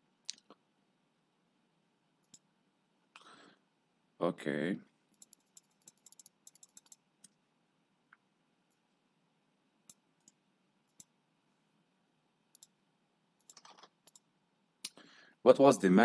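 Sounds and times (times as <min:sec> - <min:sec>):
keyboard typing: 0:02.2 - 0:02.5, 0:05.1 - 0:07.4, 0:09.8 - 0:11.1, 0:12.5 - 0:12.8, 0:13.4 - 0:14.3
mouse clicks: 0:02.2 - 0:02.5, 0:05.1 - 0:07.4, 0:09.8 - 0:11.2, 0:12.5 - 0:12.8, 0:13.4 - 0:14.3.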